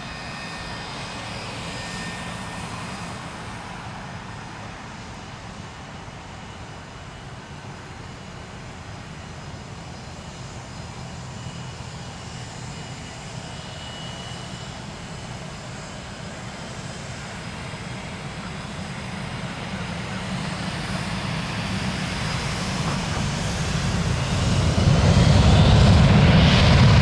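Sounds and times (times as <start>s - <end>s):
jet engines rumbling: 0.0s - 27.0s.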